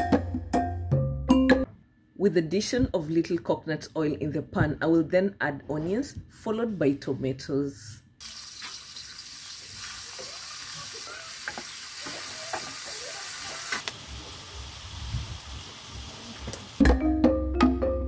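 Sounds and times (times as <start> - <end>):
vegetables sizzling in hot oil: 8.2 - 16.8.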